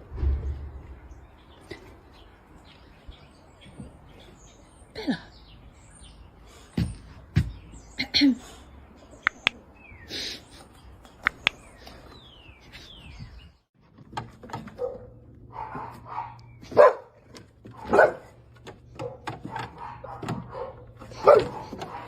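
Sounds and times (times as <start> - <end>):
sharp clicks: 9.2 - 9.6, 11.2 - 11.6
dog barking: 14.7 - 18.4, 19.0 - 22.0.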